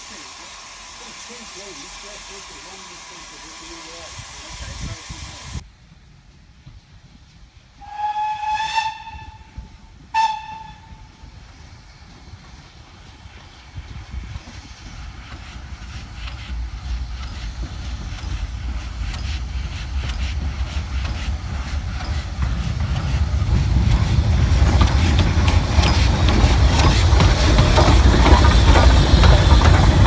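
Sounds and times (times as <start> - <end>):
steam train rumble: 0.0 - 30.0
wheels clattering on rail: 16.2 - 30.0.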